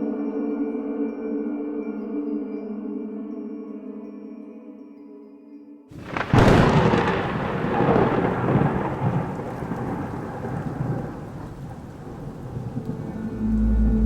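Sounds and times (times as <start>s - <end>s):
steady rain: 6.0s - 14.0s
thunderclap with rumble: 6.0s - 14.0s
soft held drone: 13.0s - 14.0s.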